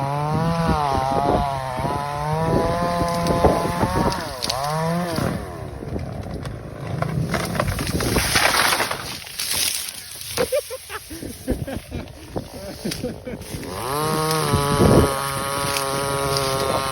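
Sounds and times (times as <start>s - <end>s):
small petrol engine revving: 0.0s - 9.7s, 13.1s - 16.9s.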